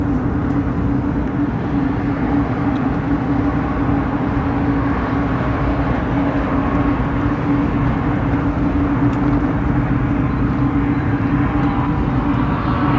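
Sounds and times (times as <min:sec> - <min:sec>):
jet engine rumble: 0:00.0 - 0:12.9.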